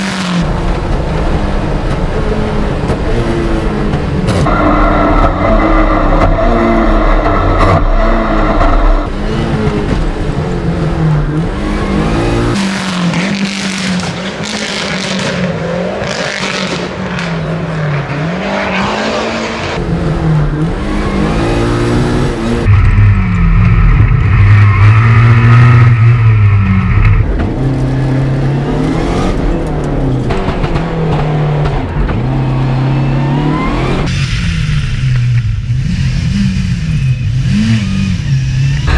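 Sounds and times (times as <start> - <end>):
car engine revving hard: 4.3 - 22.8.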